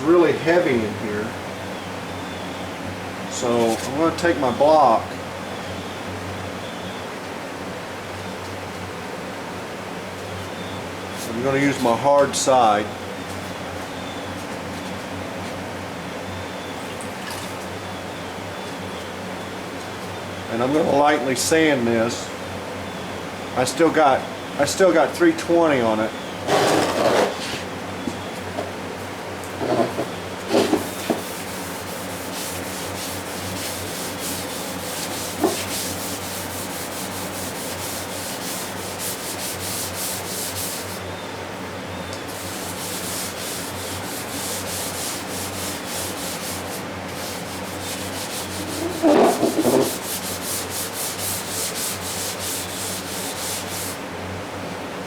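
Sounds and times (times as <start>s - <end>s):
sandpaper sanding strokes: 30.5s - 41.0s, 42.3s - 54.0s.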